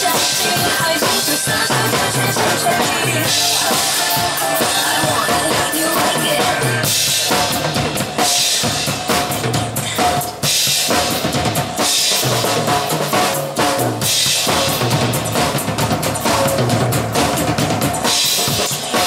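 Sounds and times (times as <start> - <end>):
pop song accompaniment: 0.0 - 7.5
drum kit playing: 0.0 - 19.0.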